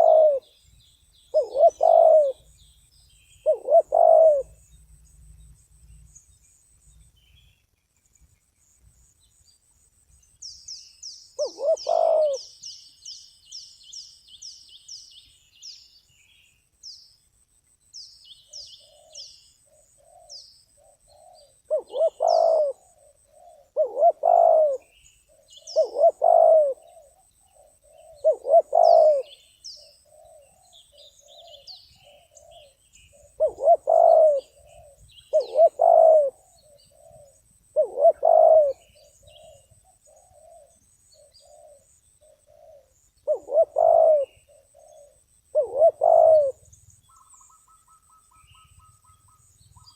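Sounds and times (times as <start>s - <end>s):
dove cooing: 0.0s - 0.6s, 1.3s - 2.6s, 3.4s - 4.6s, 11.4s - 12.6s, 18.8s - 49.9s
small birds chirping: 0.0s - 49.9s.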